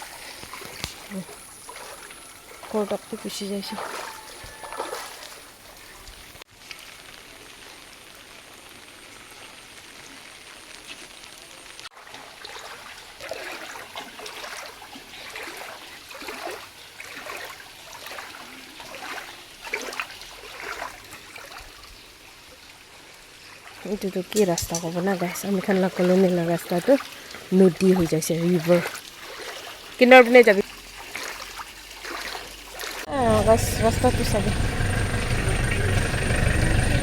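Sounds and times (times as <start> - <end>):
water splashing: 0.0 - 8.6, 12.0 - 37.0
water flowing over road: 0.0 - 37.0.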